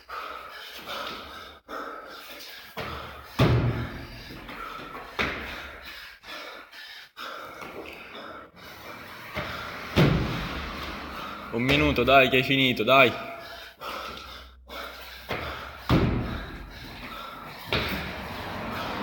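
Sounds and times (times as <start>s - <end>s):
gym equipment thudding on floor: 15.9s - 16.4s.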